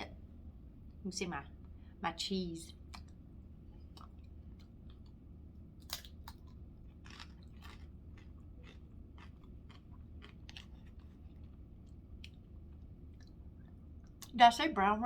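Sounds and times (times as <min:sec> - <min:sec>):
person chewing crunchy food: 0:02.9 - 0:14.3.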